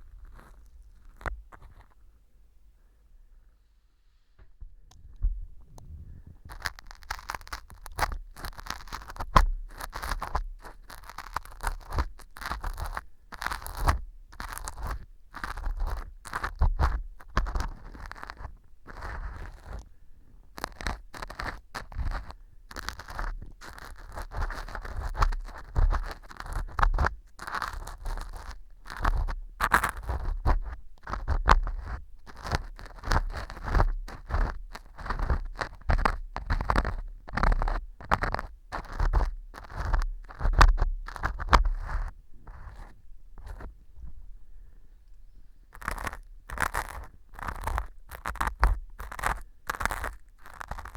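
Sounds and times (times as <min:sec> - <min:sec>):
metal earpick scraping: 0:06.5 - 0:16.6, 0:45.8 - 0:50.9.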